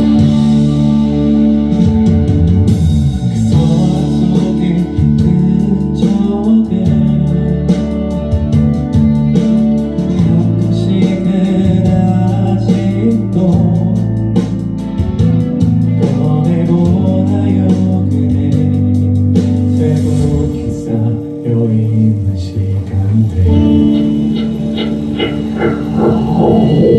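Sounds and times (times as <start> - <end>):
band music: 0.0 - 26.9
drum strokes: 20.2 - 26.9.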